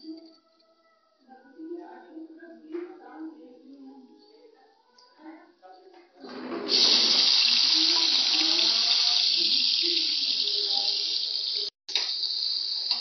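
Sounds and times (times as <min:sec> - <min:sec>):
tomatoes sizzling in hot oil: 0:06.7 - 0:13.0.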